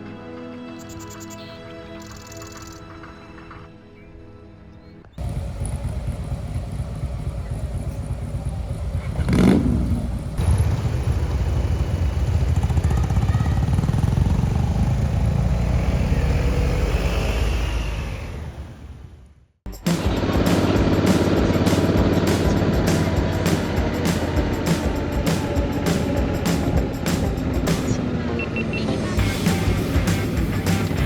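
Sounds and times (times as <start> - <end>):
motorcycle engine running: 5.2 - 17.0, 19.8 - 28.0.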